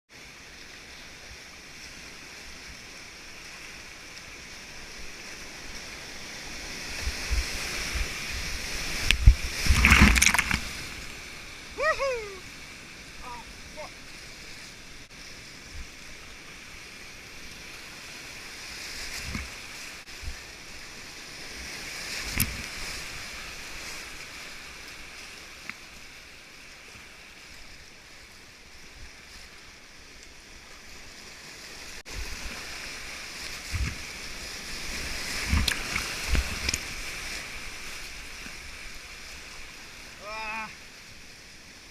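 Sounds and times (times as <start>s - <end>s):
white-water rapids rushing: 6.4s - 14.0s.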